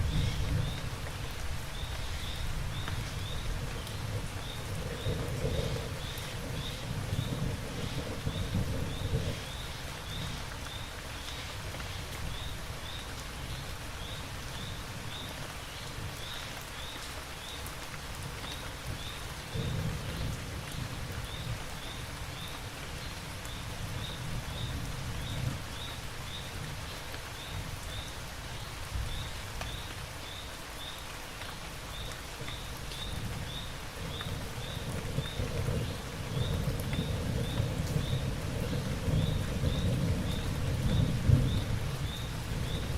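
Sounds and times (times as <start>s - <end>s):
distant thunder rumbles: 0.0s - 1.1s, 2.0s - 10.4s, 18.9s - 21.8s, 33.1s - 42.9s
steady rain falling: 0.0s - 42.9s.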